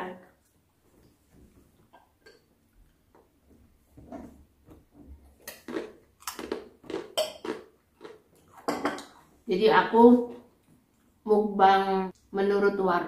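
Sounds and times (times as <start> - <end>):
crunchy snacks crackling: 5.4 - 8.5.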